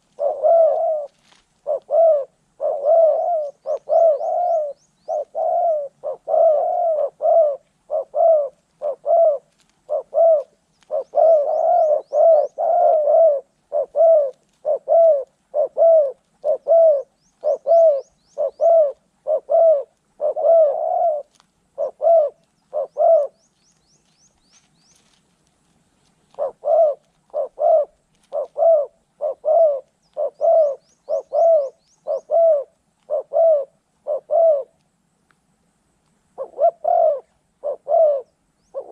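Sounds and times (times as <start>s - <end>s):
doves cooing: 0.0s - 25.2s, 25.9s - 34.8s, 36.4s - 38.9s
small bird chirping trills: 2.7s - 25.2s, 25.9s - 33.3s.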